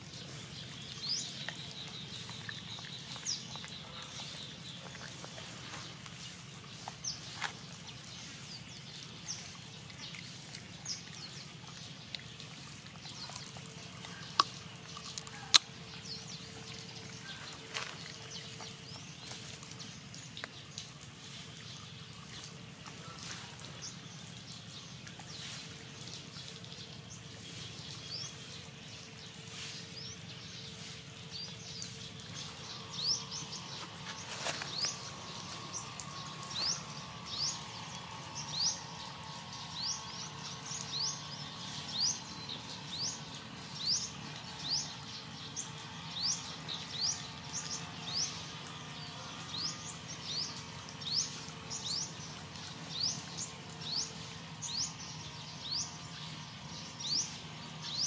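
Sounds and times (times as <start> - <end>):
outdoor hiss: 15.4 - 58.0.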